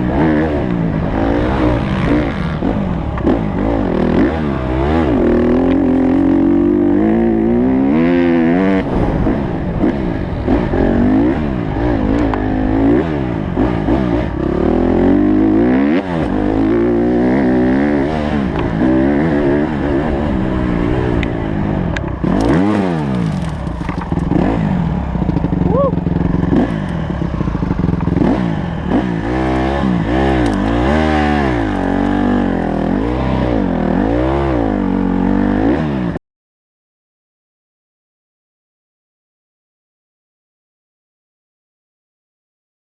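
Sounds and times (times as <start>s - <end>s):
motorcycle engine revving: 0.0s - 36.2s.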